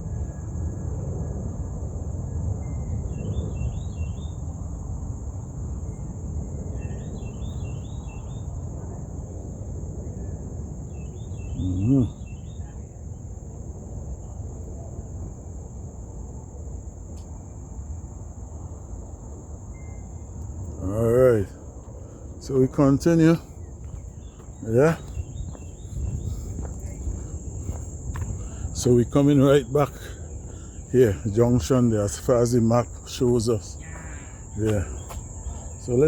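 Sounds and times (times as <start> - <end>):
bird calling: 11.4 - 12.4, 22.5 - 36.0
low outdoor rumble: 13.3 - 36.0.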